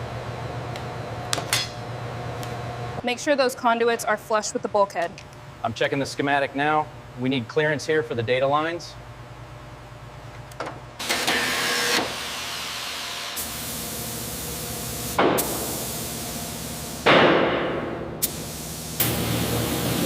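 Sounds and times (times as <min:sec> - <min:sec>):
hissing spray bursts: 0:13.4 - 0:17.0, 0:18.2 - 0:20.0.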